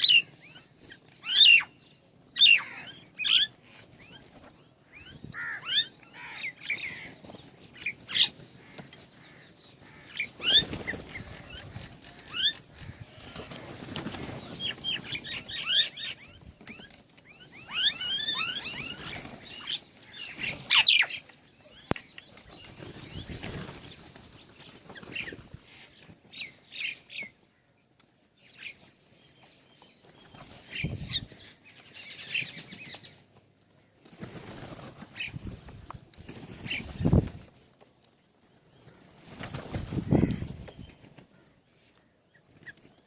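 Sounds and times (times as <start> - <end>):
small birds chirping: 0.0 - 43.0
wing flapping: 7.0 - 15.9, 22.5 - 25.6, 34.0 - 37.8, 39.0 - 41.4.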